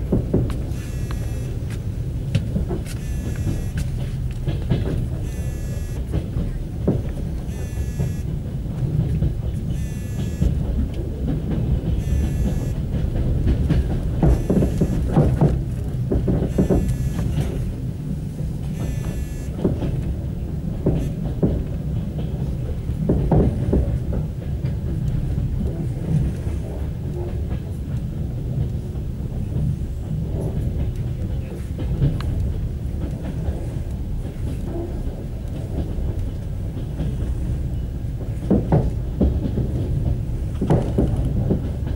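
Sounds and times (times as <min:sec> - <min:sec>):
train carriage rumbling: 0:00.0 - 0:41.9
wheels knocking over rail joints: 0:00.0 - 0:41.9
high-pitched tone: 0:00.8 - 0:01.6, 0:03.0 - 0:04.0, 0:05.2 - 0:06.1, 0:07.5 - 0:08.3, 0:09.7 - 0:10.6, 0:12.0 - 0:12.8, 0:14.2 - 0:15.2, 0:18.8 - 0:19.6.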